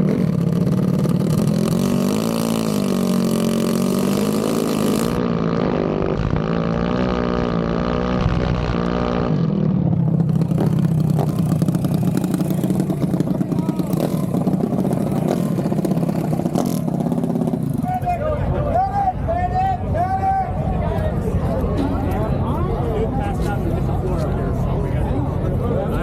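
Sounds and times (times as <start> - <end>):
engine revving: 0.0 - 17.9.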